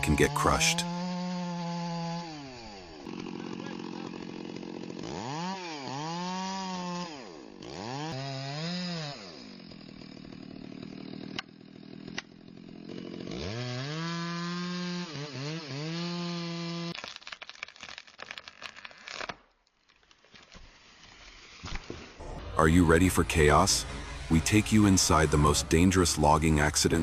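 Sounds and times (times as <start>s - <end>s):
chainsaw engine revving: 0.0s - 17.0s, 22.1s - 27.0s
quick crackling snaps: 16.9s - 21.9s.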